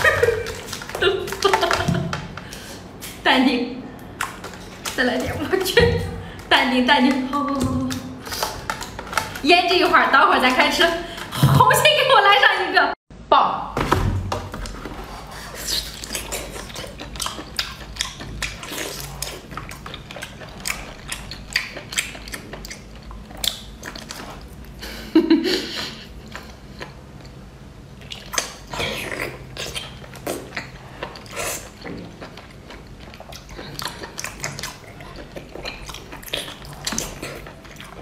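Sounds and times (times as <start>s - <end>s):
wet chewing and mouth clicks: 4.0s - 11.3s, 15.5s - 24.8s, 26.2s - 38.0s.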